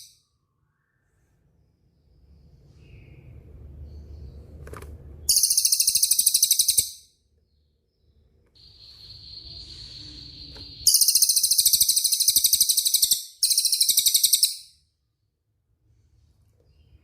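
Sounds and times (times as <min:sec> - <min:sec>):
bird song with fast trill: 0:05.2 - 0:14.9.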